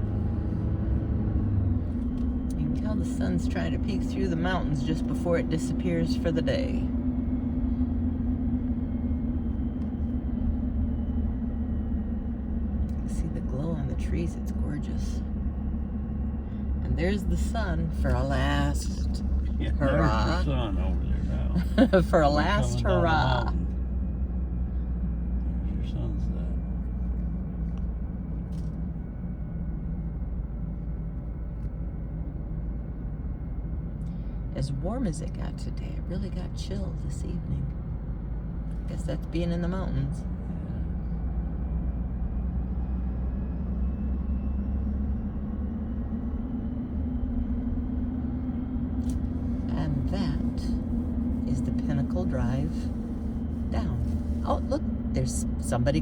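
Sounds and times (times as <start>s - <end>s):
car engine rumble: 0.0s - 56.0s
even hum: 0.0s - 56.0s
road noise: 0.0s - 56.0s.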